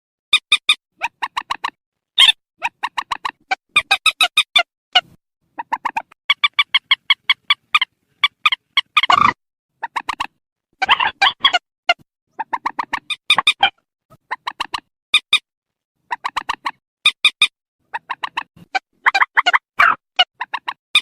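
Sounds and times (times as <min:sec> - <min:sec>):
bird nasal calls: 0:05.6 - 0:10.0.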